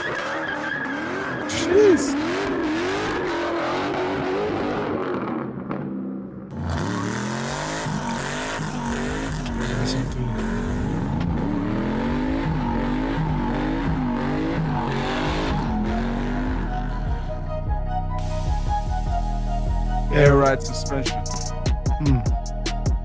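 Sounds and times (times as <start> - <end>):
car engine revving in blips: 0.0 - 23.0.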